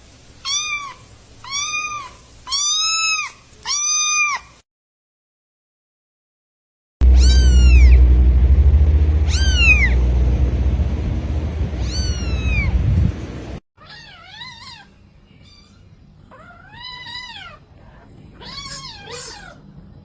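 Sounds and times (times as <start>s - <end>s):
loud low rumble: 7.0s - 13.6s
kitten mewing: 7.2s - 7.9s
cat meowing: 7.2s - 8.0s, 11.8s - 12.7s, 13.8s - 17.6s, 18.4s - 19.6s.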